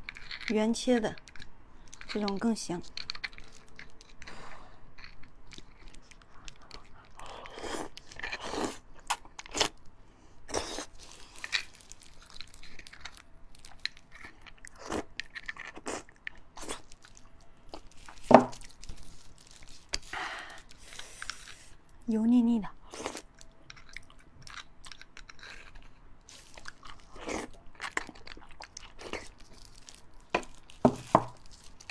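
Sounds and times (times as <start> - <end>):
chewing and crunching: 0.0 - 9.9, 10.5 - 22.0, 22.8 - 31.9.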